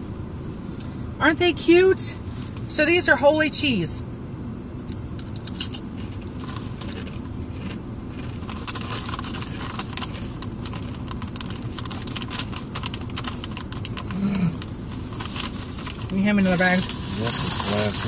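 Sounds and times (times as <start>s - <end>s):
car interior rumble: 0.0s - 18.0s
chewing crunchy cracker: 5.2s - 16.1s.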